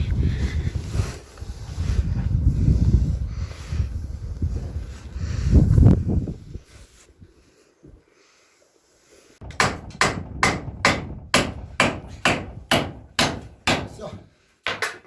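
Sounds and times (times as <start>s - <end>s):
hammer blows: 9.4s - 14.9s.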